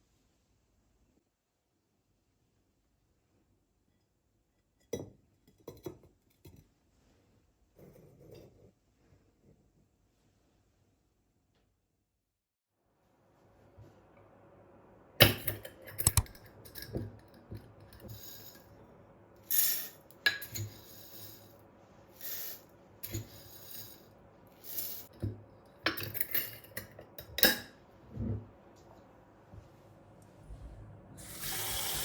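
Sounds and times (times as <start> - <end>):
dishes and cutlery clinking: 25.0 - 27.8.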